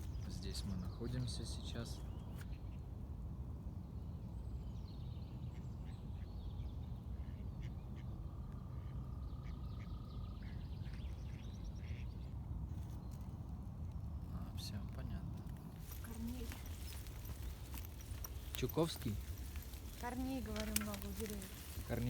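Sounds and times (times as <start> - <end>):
birds singing and calling: 0.0 - 2.9, 14.2 - 22.0.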